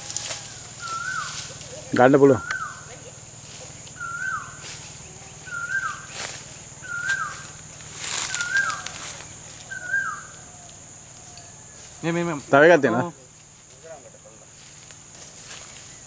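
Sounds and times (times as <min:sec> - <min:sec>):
bird calling descending notes: 0:00.0 - 0:02.9, 0:04.0 - 0:10.8
brush crackling: 0:00.0 - 0:16.0
high insect drone: 0:00.0 - 0:16.0.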